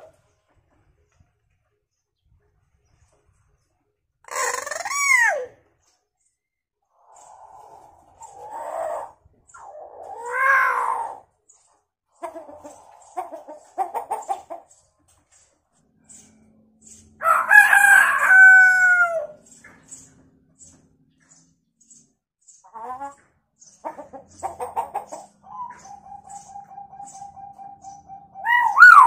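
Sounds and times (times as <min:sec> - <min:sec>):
myna clucking chatter: 0:12.2 - 0:14.7, 0:22.7 - 0:28.4
myna rooster-like crow: 0:17.2 - 0:19.4, 0:28.5 - 0:29.0.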